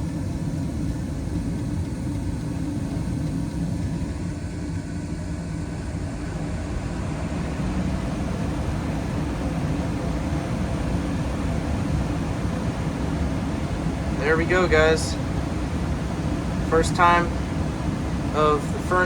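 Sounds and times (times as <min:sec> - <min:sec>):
gas furnace humming and rumbling: 0:00.0 - 0:19.0.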